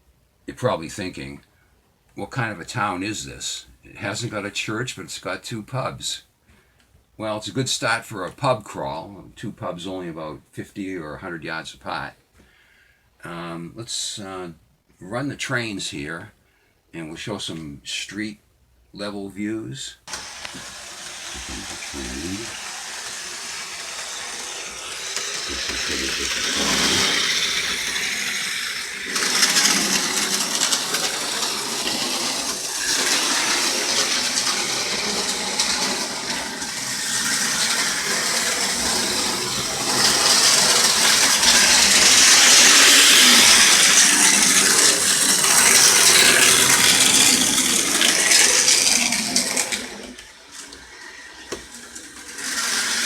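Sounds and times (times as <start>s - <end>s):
model train rattling on track: 20.1s - 53.0s.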